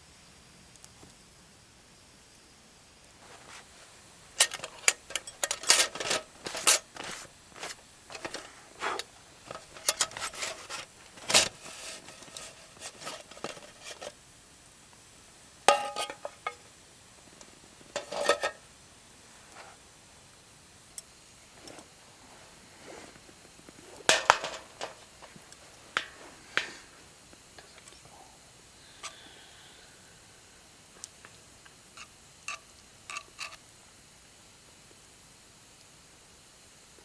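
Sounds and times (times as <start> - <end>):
metal cookware clinking and clattering: 4.4 - 14.2, 15.7 - 16.7, 18.0 - 18.6, 24.1 - 25.1, 32.5 - 33.6.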